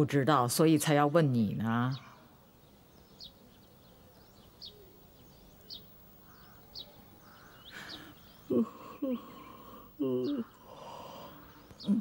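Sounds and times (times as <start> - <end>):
small bird chirping: 1.4 - 12.0
bird twittering: 2.9 - 12.0.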